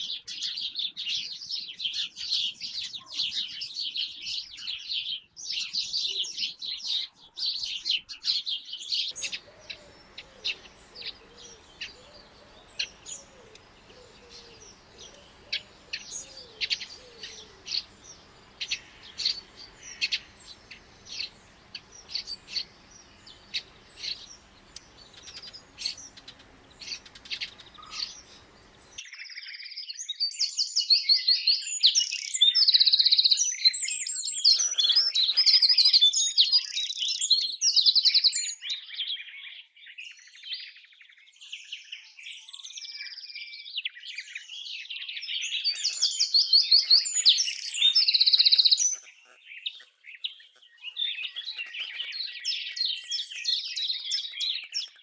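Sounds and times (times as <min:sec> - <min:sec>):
songbirds chirping and twittering: 0:00.0 - 0:55.0
faint steady hiss: 0:09.2 - 0:29.0.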